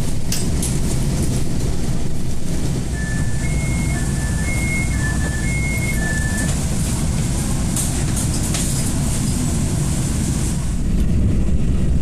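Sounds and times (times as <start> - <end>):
train rumble and hiss inside carriage: 0.0 - 12.0
two-note electronic beep: 3.0 - 6.5.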